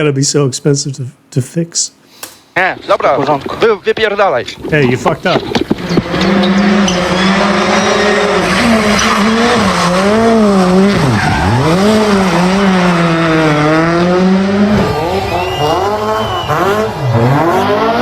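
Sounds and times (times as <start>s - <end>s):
rally car engine revving: 5.3s - 18.0s.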